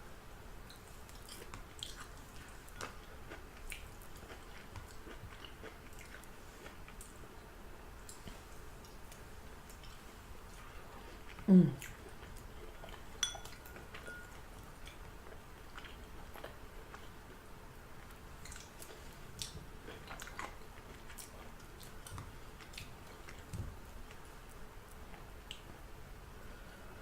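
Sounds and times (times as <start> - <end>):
person chewing food: 0.7 - 7.2, 8.0 - 25.8
person humming: 11.4 - 11.8
light clink: 13.2 - 15.0.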